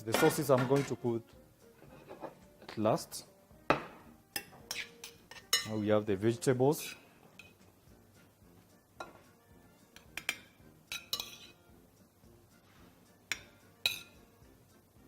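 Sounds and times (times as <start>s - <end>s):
utensils clinking on plate: 0.0s - 1.1s, 3.7s - 5.9s, 6.8s - 7.7s, 9.9s - 11.6s, 13.3s - 14.2s
faint background music: 0.0s - 15.0s.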